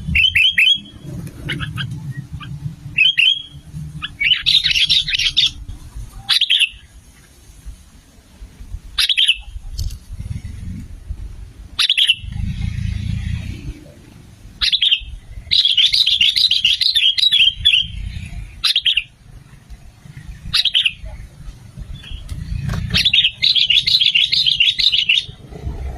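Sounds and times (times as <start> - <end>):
birds calling: 0.0 - 7.4, 8.9 - 25.9
low rumble: 9.6 - 15.5.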